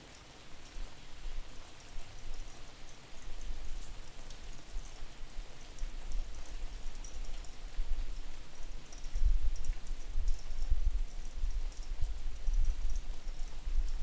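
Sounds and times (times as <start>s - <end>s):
raindrops ticking: 0.0s - 14.0s
steady rain falling: 0.0s - 14.0s
wind buffeting microphone: 9.0s - 14.0s.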